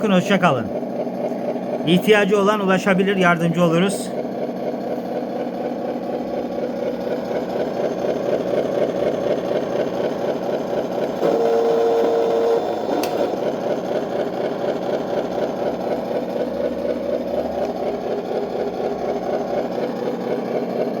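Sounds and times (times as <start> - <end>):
engine idling sound effect: 0.0 - 21.0
steady horn note: 11.2 - 13.0.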